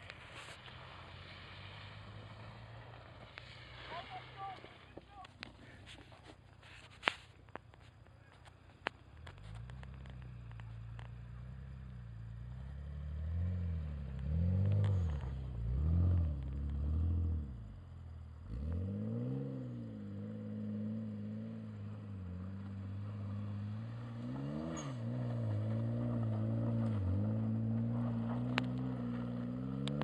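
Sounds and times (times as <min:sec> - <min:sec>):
car engine revving: 0:09.2 - 0:30.0.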